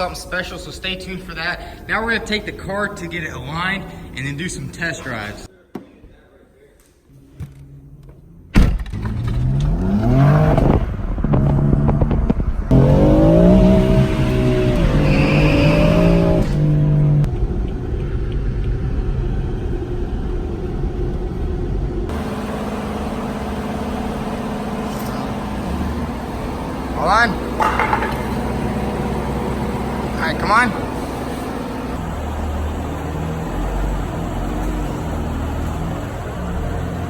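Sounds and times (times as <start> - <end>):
car engine accelerating through gears: 8.9 - 37.0.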